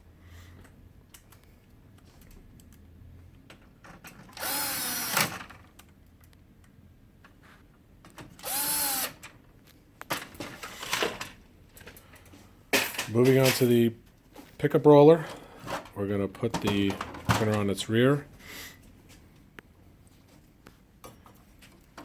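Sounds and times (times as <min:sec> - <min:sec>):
power tool motor spinning: 0:04.4 - 0:05.3, 0:08.4 - 0:09.2.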